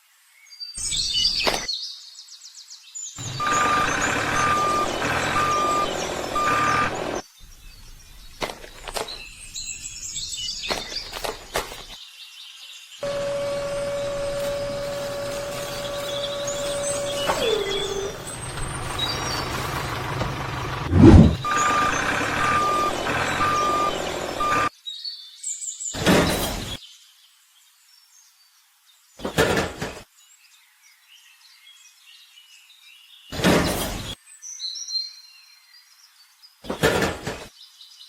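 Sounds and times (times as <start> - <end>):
reversing beeper: 3.2 - 7.2, 13.0 - 18.4, 20.8 - 24.7
truck engine running: 3.2 - 7.2, 13.0 - 24.7
loud thump: 20.9 - 21.5.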